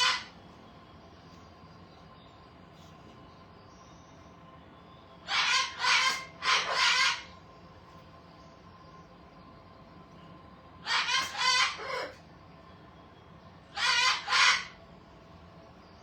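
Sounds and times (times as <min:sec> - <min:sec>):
parrot squawking: 0:00.0 - 0:00.4, 0:05.2 - 0:07.4, 0:10.8 - 0:12.2, 0:13.7 - 0:14.8.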